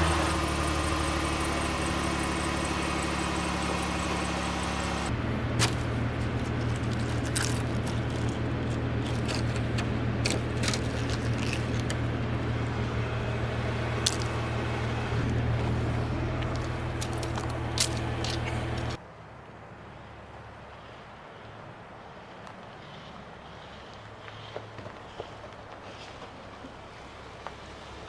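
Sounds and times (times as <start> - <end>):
vehicle engine running: 0.0 - 19.0, 20.7 - 28.0
sharp clicks and crackles: 5.6 - 12.0.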